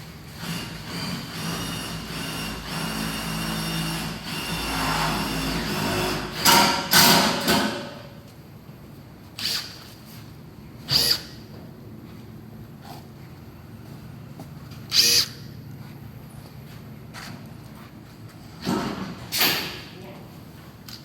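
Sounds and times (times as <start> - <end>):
power tool running: 0.3 - 7.8.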